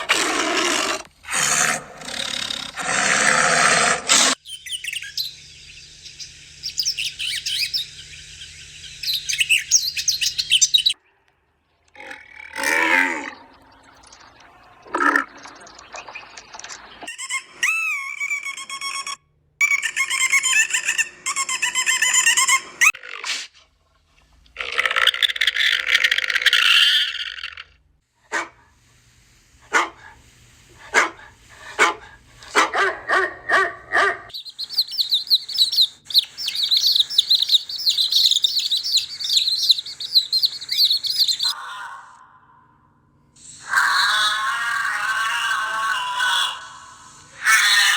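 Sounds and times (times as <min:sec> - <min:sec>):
high rapid bird-like chirping: 0:04.3 - 0:11.0, 0:34.3 - 0:41.6
long wavering animal calls: 0:11.9 - 0:16.2, 0:34.7 - 0:42.7, 0:43.4 - 0:47.9
dog barking: 0:28.3 - 0:28.7, 0:29.7 - 0:30.2, 0:30.9 - 0:34.3.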